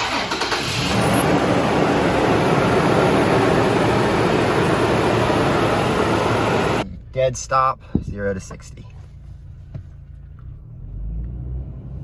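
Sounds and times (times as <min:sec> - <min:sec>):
engine and intake rush: 0:00.0 - 0:06.8
thin high whine: 0:00.9 - 0:06.8.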